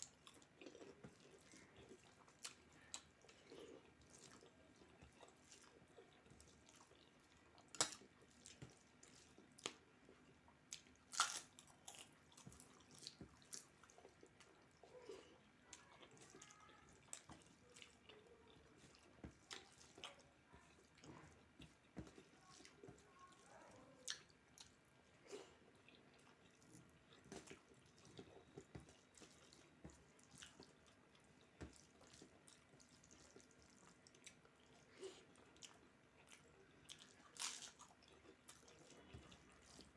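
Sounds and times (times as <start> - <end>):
person chewing: 0.0 - 39.9
sharp cracks while eating: 7.6 - 8.8, 10.7 - 13.8, 36.9 - 38.6.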